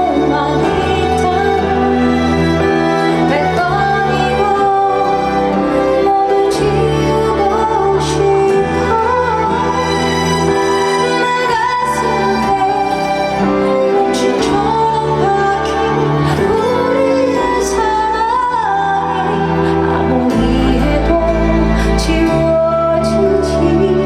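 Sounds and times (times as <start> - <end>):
woman singing a ballad: 0.0 - 24.0.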